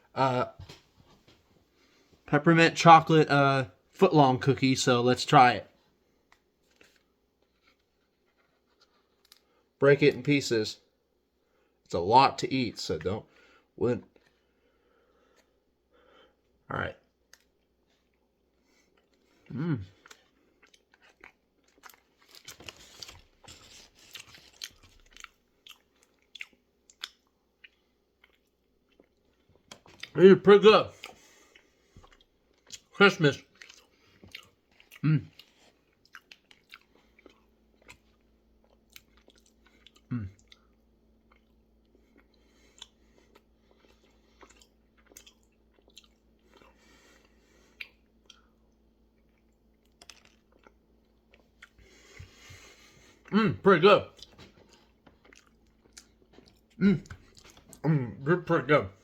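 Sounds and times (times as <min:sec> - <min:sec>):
person chewing cookie: 0:14.0 - 0:30.2, 0:30.9 - 0:59.0.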